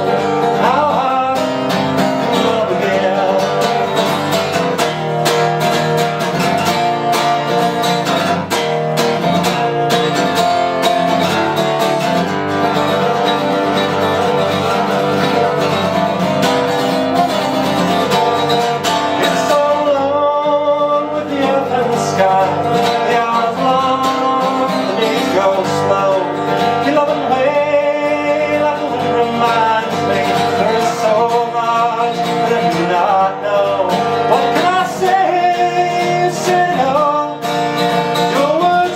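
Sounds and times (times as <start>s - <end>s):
person singing: 0.0s - 4.7s, 19.0s - 38.9s
acoustic guitar folk song: 0.0s - 38.9s.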